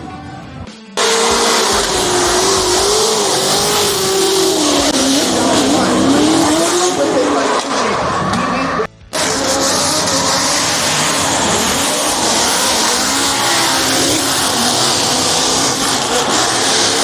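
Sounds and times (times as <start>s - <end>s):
car engines revving: 0.0s - 17.0s
tyres squealing: 0.0s - 17.0s.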